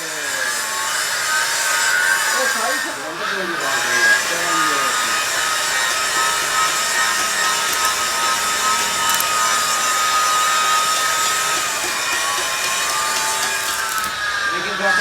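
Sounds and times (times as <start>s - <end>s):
power tool whining and grinding: 0.0s - 15.0s.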